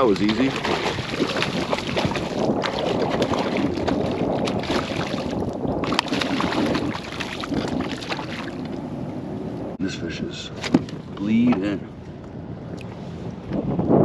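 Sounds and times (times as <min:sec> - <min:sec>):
water sloshing: 0:00.0 - 0:09.0
wind buffeting microphone: 0:00.0 - 0:14.0.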